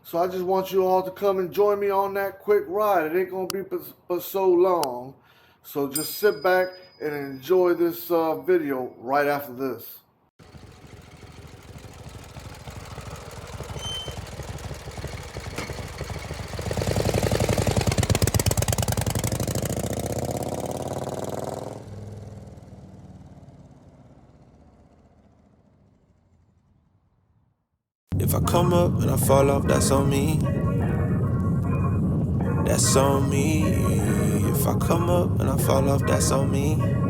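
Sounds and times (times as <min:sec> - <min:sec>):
motorcycle engine pulsing: 0:10.4 - 0:23.5, 0:28.1 - 0:37.0.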